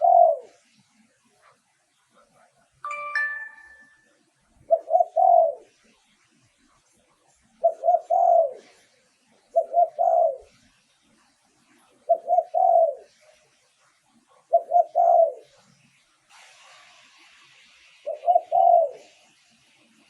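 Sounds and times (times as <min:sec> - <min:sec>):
dove cooing: 0:00.0 - 0:00.7, 0:04.7 - 0:05.8, 0:07.6 - 0:08.8, 0:09.5 - 0:10.6, 0:12.1 - 0:13.2, 0:14.4 - 0:15.6, 0:18.0 - 0:19.2.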